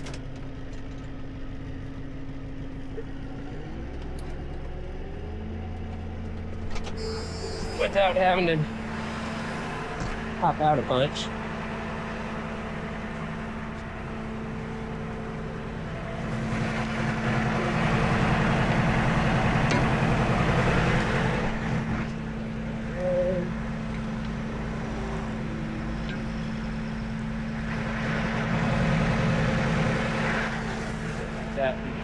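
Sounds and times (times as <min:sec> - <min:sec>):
tow truck engine reversing: 0:02.9 - 0:32.0
steady low hum: 0:06.4 - 0:32.0.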